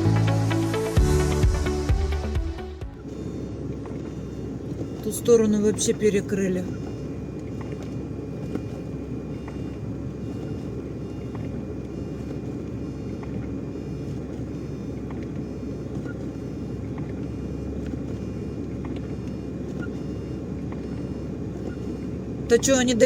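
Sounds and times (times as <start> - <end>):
lorry engine drone and road noise: 0.0 - 23.0
faint ticks: 6.8 - 13.5.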